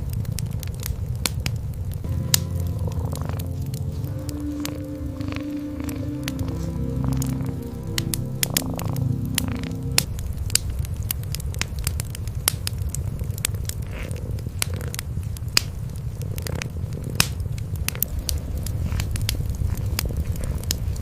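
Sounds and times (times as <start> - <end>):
wood fire crackling and popping: 0.0 - 21.0
cats purring: 2.4 - 10.2, 12.6 - 21.0.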